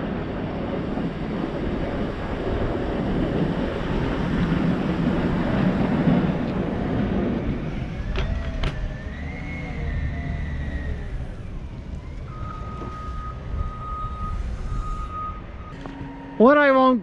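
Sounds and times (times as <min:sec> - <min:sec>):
wind on microphone: 0:00.0 - 0:16.1
snowplow engine: 0:00.0 - 0:17.0
reversing alarm beeping: 0:08.8 - 0:17.0.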